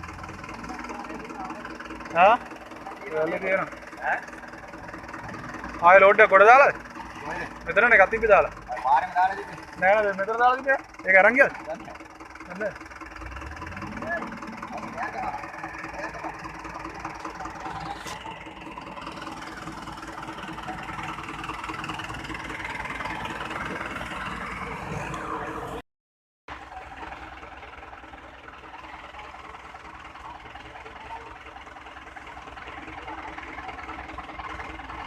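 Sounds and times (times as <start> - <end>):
tractor diesel engine running: 0.0 - 25.8, 26.5 - 35.0.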